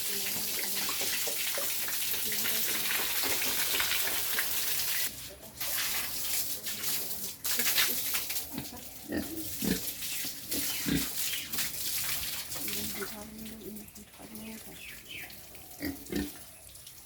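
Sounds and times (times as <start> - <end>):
running water rushing: 0.0 - 17.0
pigs grunting: 8.9 - 11.2, 15.6 - 16.4.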